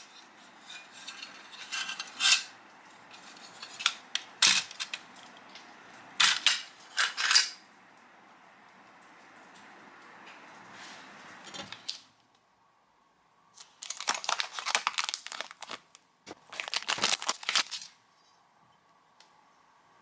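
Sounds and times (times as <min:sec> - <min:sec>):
wrapping material crinkling: 0:13.6 - 0:18.0.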